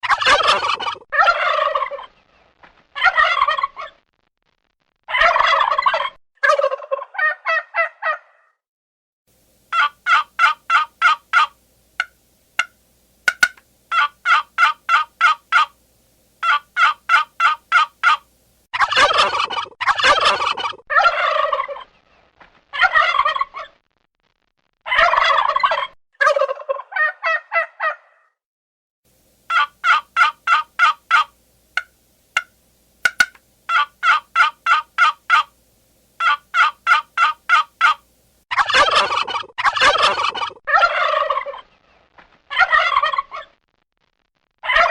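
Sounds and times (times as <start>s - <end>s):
turkeys gobbling: 0.0s - 2.1s, 5.2s - 8.3s, 9.7s - 15.8s, 16.4s - 18.3s, 18.9s - 21.8s, 25.0s - 28.0s, 29.5s - 35.6s, 36.2s - 41.6s.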